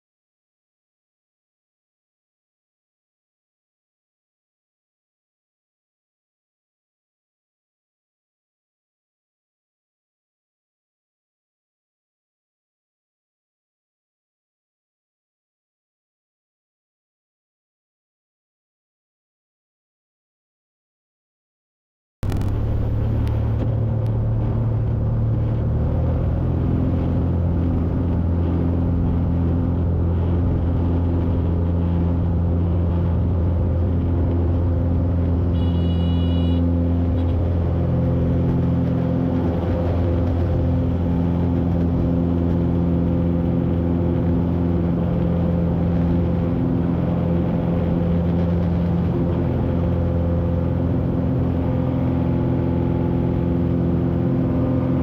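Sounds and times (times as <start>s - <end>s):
aircraft engine and propeller drone: 22.2s - 55.0s.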